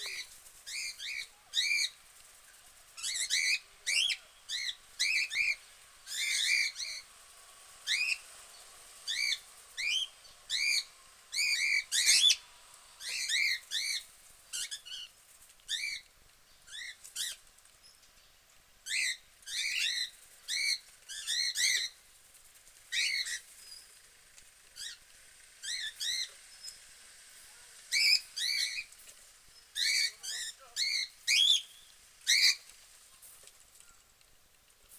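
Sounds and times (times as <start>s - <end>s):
budgerigars chirping and warbling: 3.0s - 7.1s, 7.9s - 15.1s, 18.9s - 22.0s, 22.9s - 23.9s, 25.6s - 26.8s, 27.9s - 28.9s, 29.6s - 32.6s.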